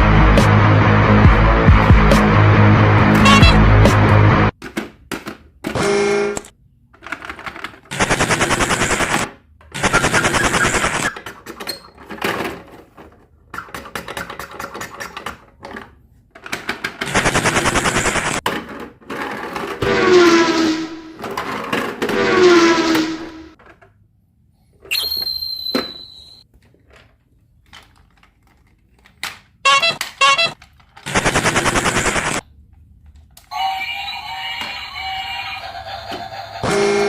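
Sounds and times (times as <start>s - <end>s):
sounds falling in pitch: 3.1s - 3.8s
plastic toy clicking rapidly: 13.6s - 15.7s.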